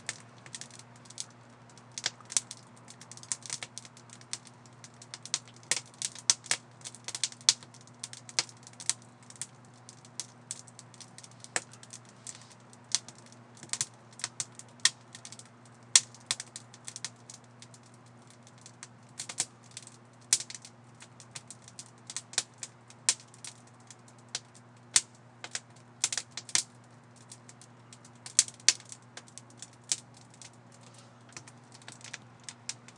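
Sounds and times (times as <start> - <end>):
wood fire crackling: 0.0 - 32.9.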